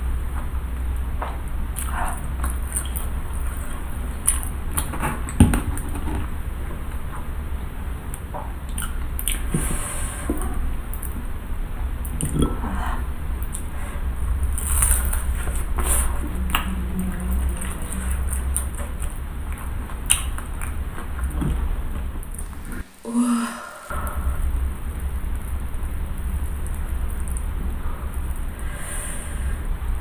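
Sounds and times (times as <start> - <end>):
low hum: 0.0 - 30.0
wet sticky chewing: 1.8 - 6.3, 8.6 - 9.6, 14.3 - 22.8.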